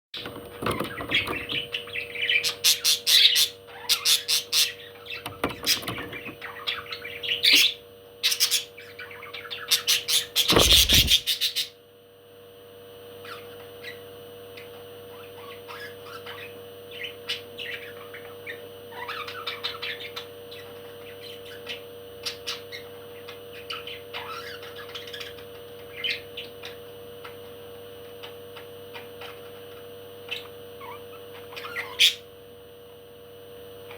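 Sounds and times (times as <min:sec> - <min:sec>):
parrot squawking and chirping: 0:06.4 - 0:11.8, 0:30.8 - 0:32.2
steady hum: 0:09.8 - 0:11.7.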